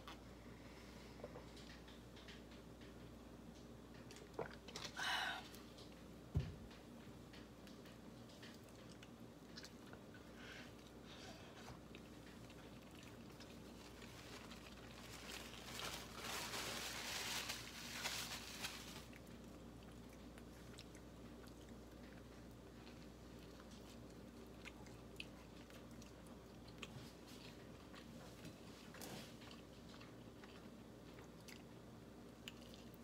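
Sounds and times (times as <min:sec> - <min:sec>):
crunching toast chewing: 0:11.6 - 0:16.2, 0:19.0 - 0:33.0.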